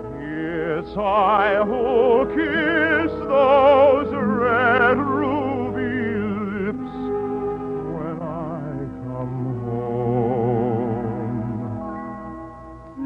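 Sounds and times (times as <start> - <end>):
person singing operatically: 0.0 - 7.1, 7.8 - 11.9
orchestral accompaniment: 0.0 - 13.0.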